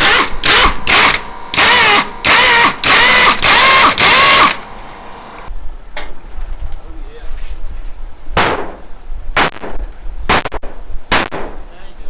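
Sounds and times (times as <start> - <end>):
impact wrench bursts: 0.0 - 5.5.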